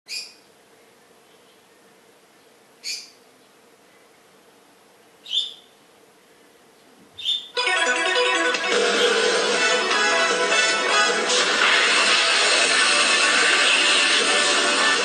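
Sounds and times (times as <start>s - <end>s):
short bird-like chirps: 0.1s - 0.5s, 2.8s - 3.2s, 5.2s - 5.8s, 7.2s - 7.6s.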